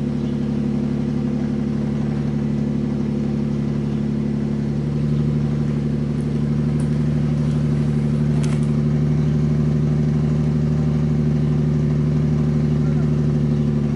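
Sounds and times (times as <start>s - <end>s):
car engine idling: 0.0s - 13.9s.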